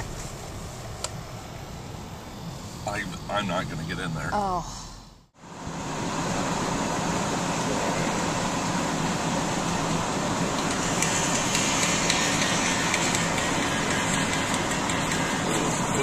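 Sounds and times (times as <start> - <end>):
snowblower engine droning: 5.4 - 16.0.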